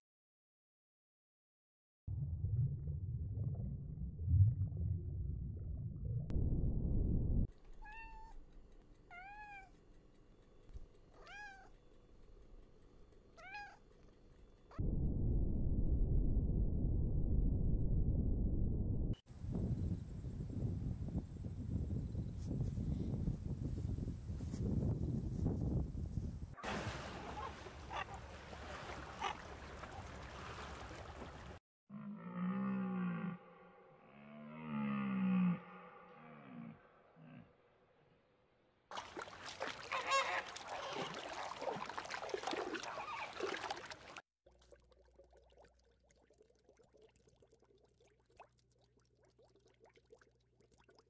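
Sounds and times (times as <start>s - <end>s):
low rumbling noise: 2.1s - 7.5s, 14.8s - 21.7s
cat meowing: 11.2s - 11.7s, 13.4s - 13.8s
gull calling: 26.7s - 30.2s, 39.6s - 41.9s, 42.8s - 43.6s.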